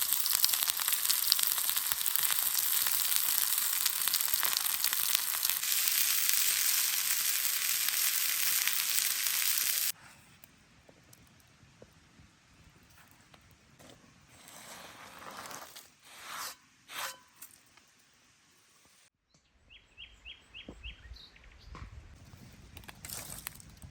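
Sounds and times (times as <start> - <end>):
chicken sizzling on hot stone: 0.0 - 10.0.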